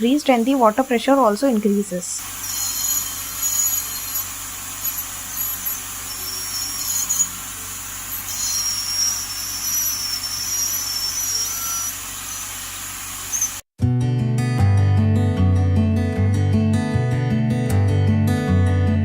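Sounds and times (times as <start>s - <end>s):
dental scaler hissing and whining: 0.0s - 13.7s.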